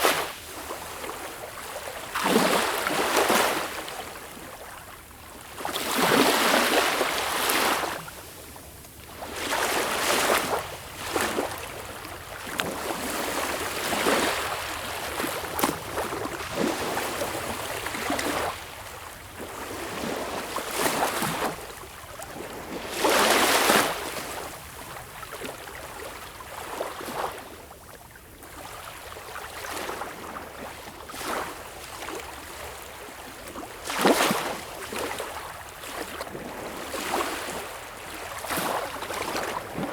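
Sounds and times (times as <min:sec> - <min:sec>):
sea waves breaking: 0:05.6 - 0:08.4, 0:09.0 - 0:21.6.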